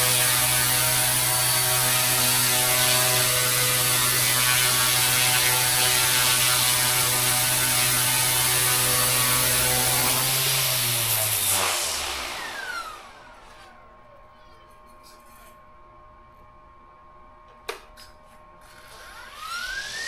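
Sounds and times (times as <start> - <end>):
rc helicopter rotor buzzing: 0.0 - 13.9, 18.6 - 20.0.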